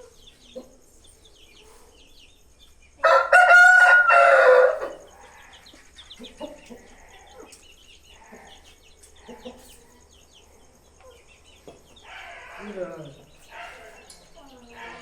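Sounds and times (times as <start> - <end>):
small birds chirping: 0.0 - 15.0
rooster crowing: 3.0 - 5.1.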